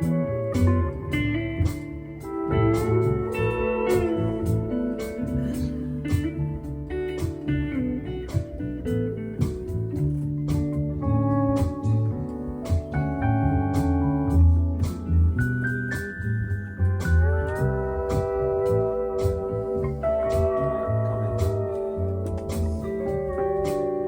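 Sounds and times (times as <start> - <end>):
bass: 0.0 - 24.0
sliding guitar melody: 0.0 - 24.0
steady drum beat: 0.6 - 10.9, 17.0 - 24.0.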